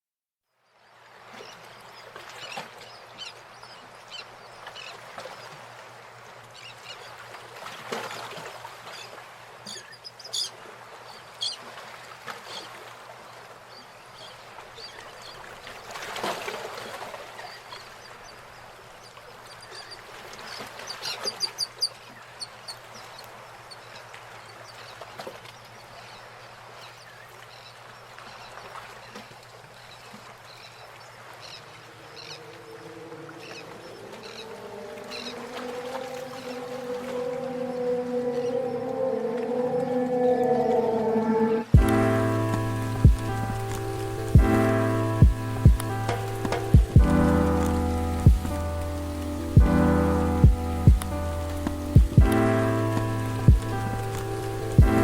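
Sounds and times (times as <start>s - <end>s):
birds calling and chirping: 31.4s - 47.2s
steady rushing background: 33.1s - 55.0s.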